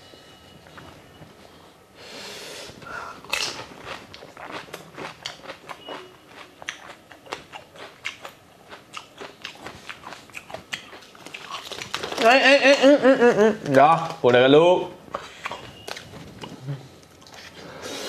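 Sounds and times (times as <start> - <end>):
crunchy chewing: 3.3 - 12.3.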